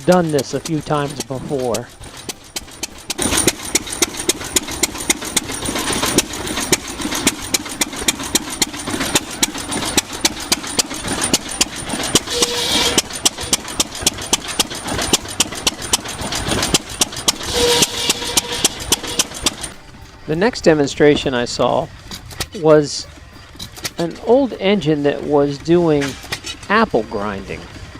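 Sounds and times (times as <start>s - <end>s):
engine exhaust pops: 0.0s - 19.8s
hissing whine: 8.9s - 13.9s, 17.2s - 27.9s.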